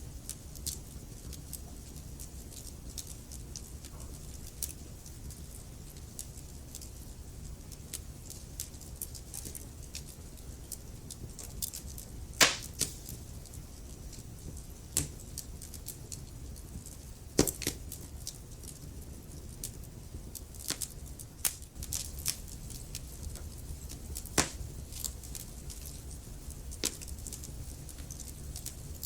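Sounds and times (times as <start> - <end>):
low fire rumble: 0.0 - 29.0
wood fire snapping and popping: 0.0 - 29.0.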